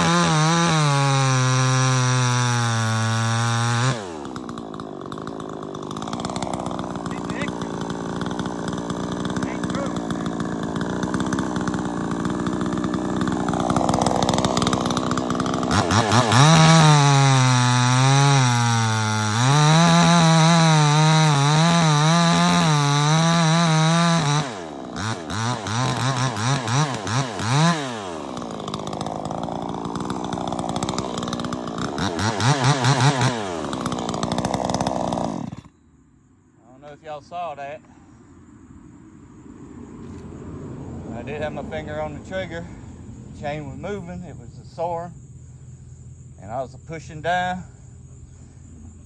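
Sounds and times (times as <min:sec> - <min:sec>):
chainsaw engine revving: 0:00.0 - 0:35.8, 0:41.1 - 0:45.0.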